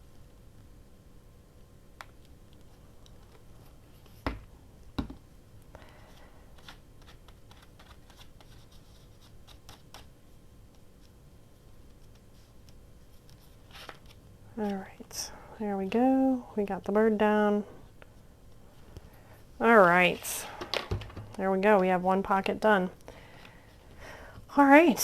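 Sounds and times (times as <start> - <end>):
paper clicks and crinkles: 5.9 - 10.1, 11.8 - 14.8.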